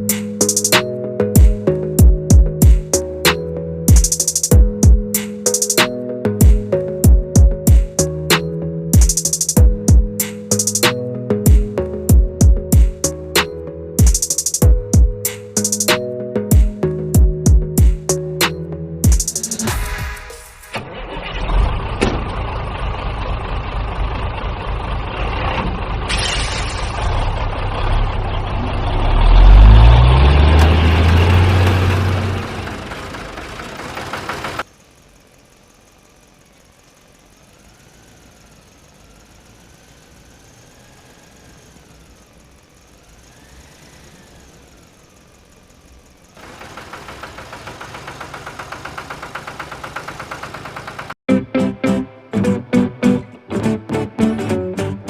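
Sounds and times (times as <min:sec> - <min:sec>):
vehicle engine revving: 0:19.3 - 0:51.2.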